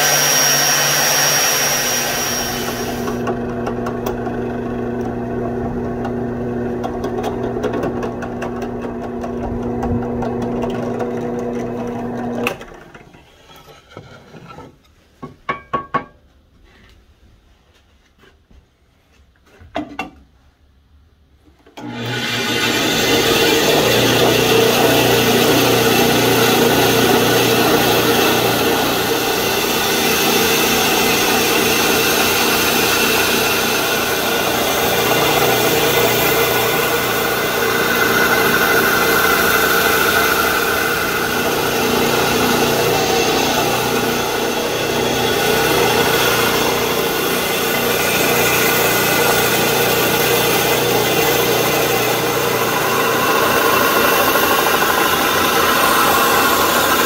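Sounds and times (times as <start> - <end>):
band saw cutting wood: 0.0 - 12.6, 21.8 - 57.0.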